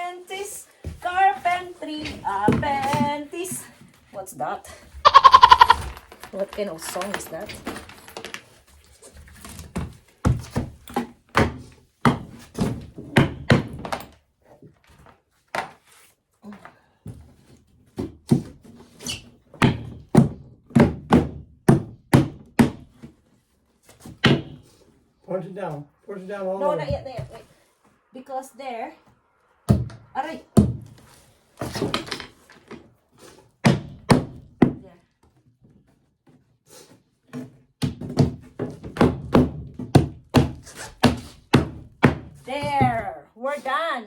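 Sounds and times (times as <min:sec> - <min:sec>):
hammer pounding on wood: 0:19.6 - 0:23.0, 0:24.2 - 0:24.7, 0:33.6 - 0:34.8, 0:37.8 - 0:43.0.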